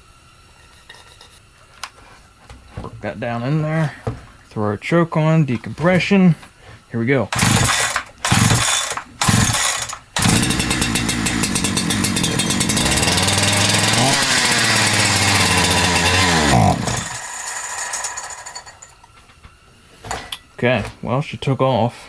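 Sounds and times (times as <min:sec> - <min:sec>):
chainsaw engine running: 0:07.3 - 0:18.9.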